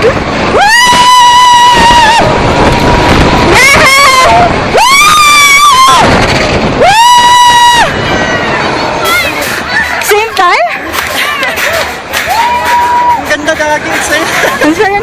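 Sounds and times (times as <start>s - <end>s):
wind rushing on microphone: 0.0s - 15.0s
riders screaming: 0.5s - 2.4s, 3.4s - 9.9s.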